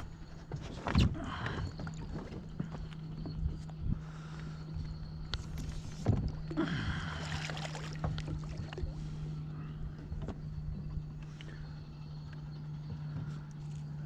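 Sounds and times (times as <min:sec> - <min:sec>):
steady low hum: 0:00.0 - 0:14.0
water splashing: 0:07.0 - 0:09.2.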